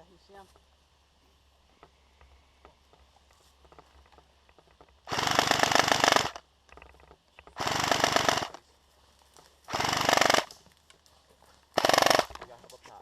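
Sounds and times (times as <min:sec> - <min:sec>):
airsoft rifle full-auto bursts: 0:05.0 - 0:06.4, 0:07.6 - 0:08.6, 0:09.7 - 0:10.6, 0:11.7 - 0:12.4.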